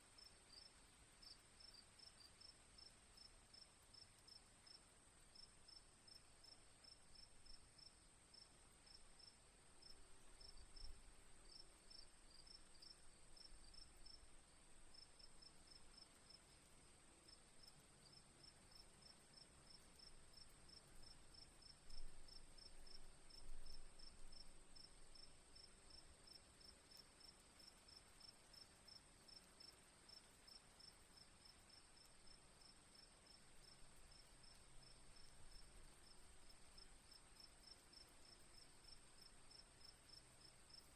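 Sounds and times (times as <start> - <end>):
crickets chirping: 0.2 - 40.9
insect trill: 26.3 - 40.9.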